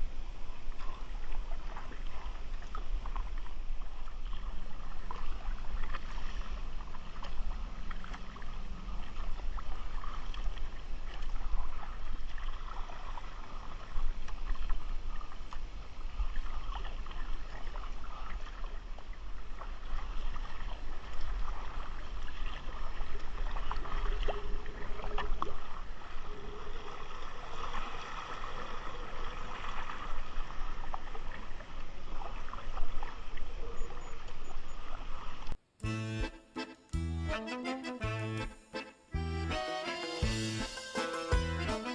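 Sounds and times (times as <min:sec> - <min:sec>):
wind rumble on microphone: 0:00.0 - 0:27.3
water sloshing around a kayak: 0:00.0 - 0:35.8.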